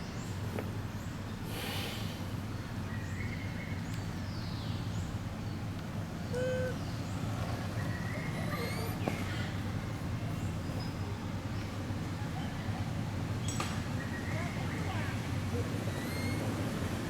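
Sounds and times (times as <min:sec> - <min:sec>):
high-pitched animal chirps: 0:06.3 - 0:06.8.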